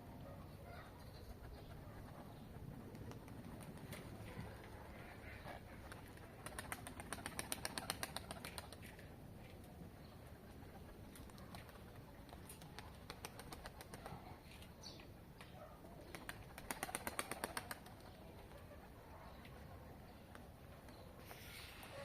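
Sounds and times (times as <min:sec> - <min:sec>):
pigeons flapping wings: 0:01.4 - 0:09.2, 0:10.4 - 0:14.3, 0:15.9 - 0:18.8
sharp wing claps: 0:06.4 - 0:08.8, 0:16.1 - 0:18.0.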